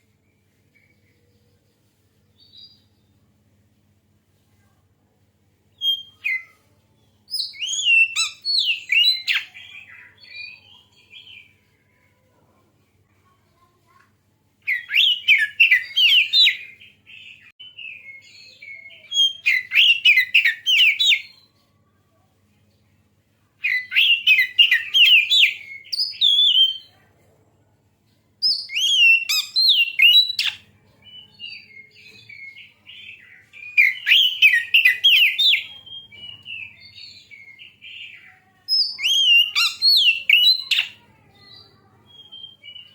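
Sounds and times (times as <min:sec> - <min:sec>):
songbird singing: 0:05.6 - 0:12.2, 0:14.6 - 0:21.9, 0:22.8 - 0:27.0, 0:28.4 - 0:42.9.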